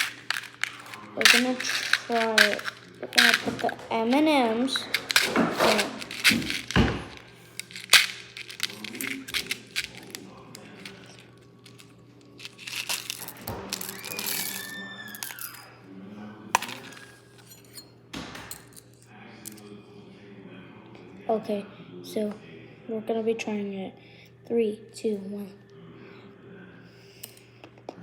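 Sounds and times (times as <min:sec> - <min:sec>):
candies clicking in plastic cup: 0:00.0 - 0:15.6, 0:16.6 - 0:17.1.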